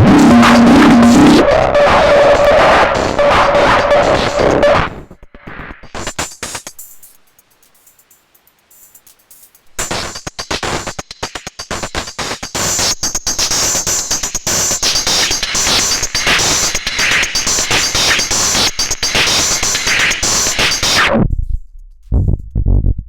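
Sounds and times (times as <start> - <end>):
noisy synthesizer texture: 0.0 - 5.2
rapid electronic clicks: 9.0 - 21.1.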